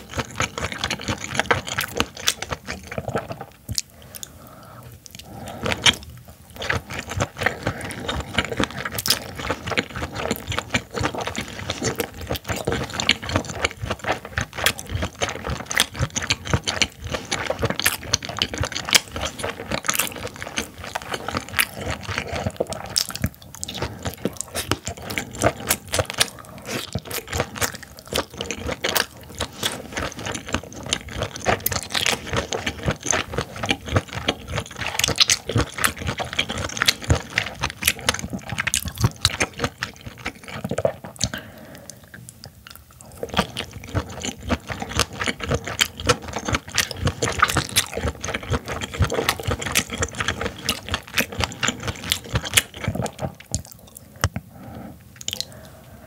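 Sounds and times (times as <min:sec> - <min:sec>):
wet chewing clicks and smacks: 0:00.0 - 0:04.3, 0:05.0 - 0:41.4, 0:42.1 - 0:54.4, 0:55.2 - 0:55.8.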